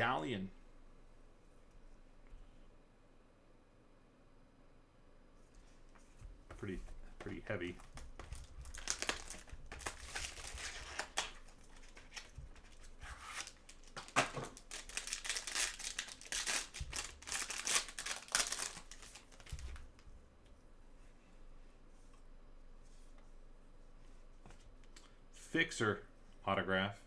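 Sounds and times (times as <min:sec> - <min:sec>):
card packaging crinkling and tearing: 0:07.7 - 0:20.0.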